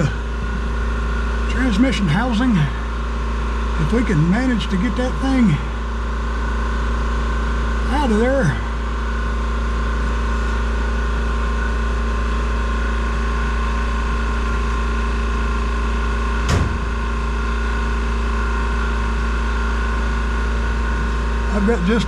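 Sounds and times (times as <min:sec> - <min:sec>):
machine hum with deep drone: 0:00.0 - 0:22.0
short knock: 0:16.5 - 0:16.9.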